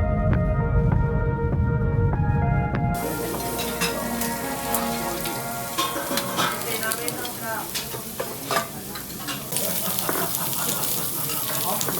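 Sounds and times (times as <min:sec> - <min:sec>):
faint chatter of diners: 0:03.0 - 0:11.9
meat sizzling on a grill pan: 0:03.0 - 0:11.9.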